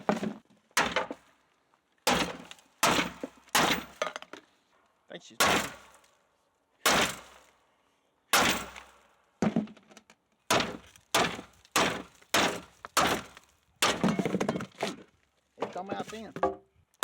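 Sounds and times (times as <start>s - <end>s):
sledgehammer striking steel: 2.1s - 4.0s, 5.4s - 6.0s, 6.8s - 7.4s, 8.4s - 9.0s, 10.5s - 14.2s.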